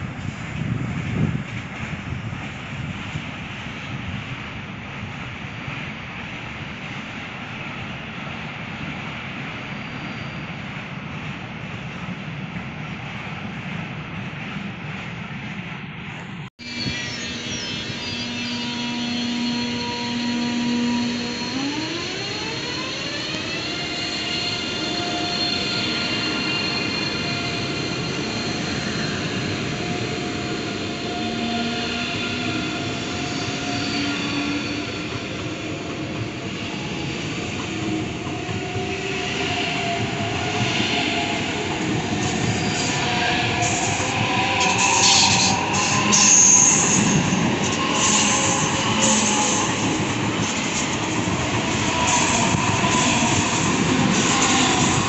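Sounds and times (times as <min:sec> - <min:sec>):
wheels rumbling on rail: 0:00.0 - 0:55.0
electric train whine: 0:16.6 - 0:55.0.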